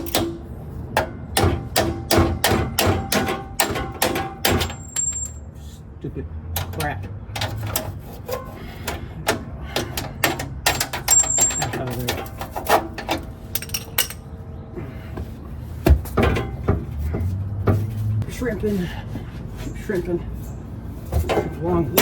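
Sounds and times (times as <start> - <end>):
metal parts clinking and knocking: 2.4 - 5.5, 6.6 - 14.4.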